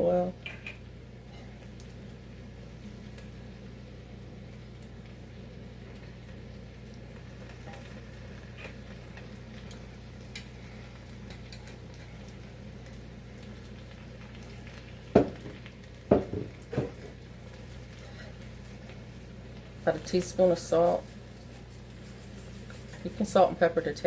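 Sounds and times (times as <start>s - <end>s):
vegetables sizzling in oil: 0.0s - 24.0s
utensil knocking against pot: 15.2s - 16.9s.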